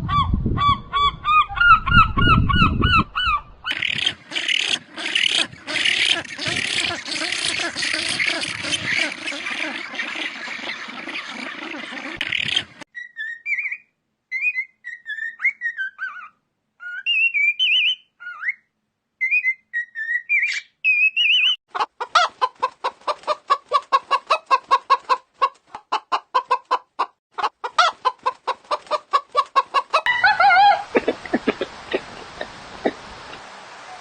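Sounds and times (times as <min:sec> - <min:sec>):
bird chirps and whistles: 0:12.3 - 0:21.6
chicken clucking: 0:21.7 - 0:32.3.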